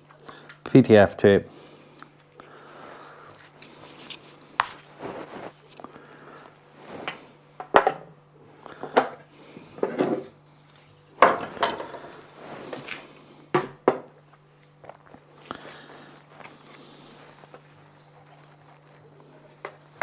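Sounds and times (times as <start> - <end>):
thread tape rustling: 3.4 - 5.8.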